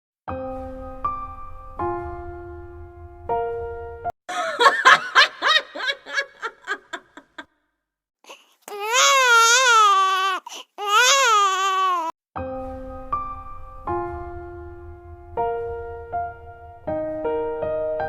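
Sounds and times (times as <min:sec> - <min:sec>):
soft piano music: 0:00.3 - 0:04.1, 0:12.4 - 0:18.0.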